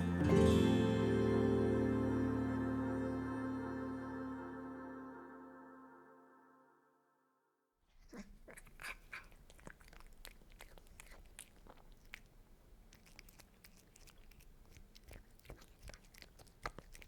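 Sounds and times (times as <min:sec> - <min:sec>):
cats crunching food: 0:07.9 - 0:17.0.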